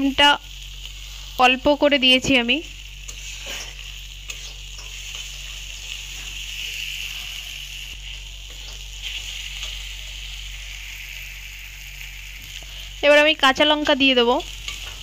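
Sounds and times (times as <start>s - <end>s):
masala sizzling in oil: 0.0s - 15.0s
metal spatula scraping: 3.0s - 10.5s.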